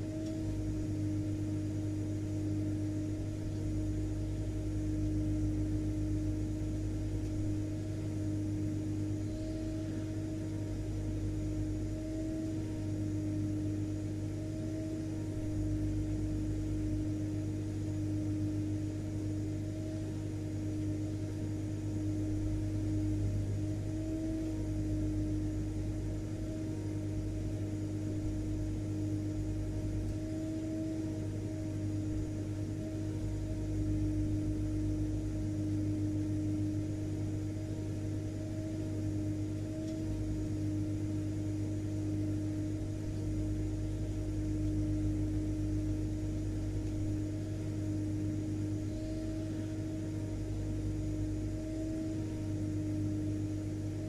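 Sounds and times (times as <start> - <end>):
vacuum cleaner motor running: 0.0 - 25.6, 28.1 - 54.0.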